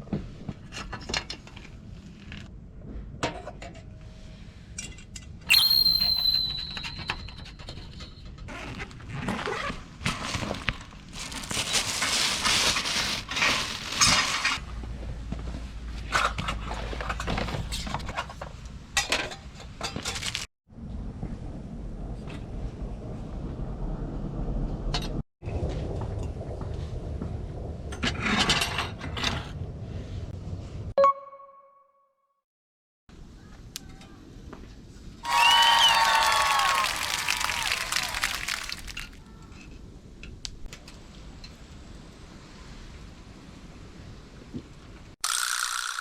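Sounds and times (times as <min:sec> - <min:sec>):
rustling noise: 0:08.5 - 0:18.6.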